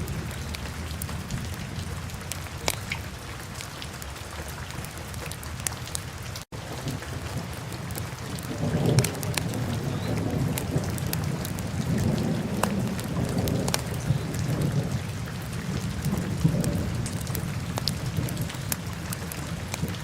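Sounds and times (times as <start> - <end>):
fire crackles and pops: 0.0 - 20.0
low rumble of flames: 6.6 - 20.0.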